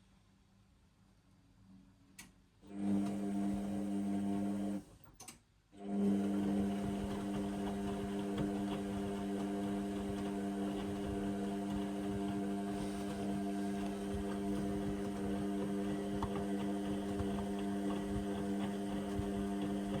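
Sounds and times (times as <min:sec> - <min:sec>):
click: 0:02.2 - 0:02.4, 0:05.1 - 0:05.4
washing machine humming: 0:02.7 - 0:04.9, 0:05.8 - 0:20.0.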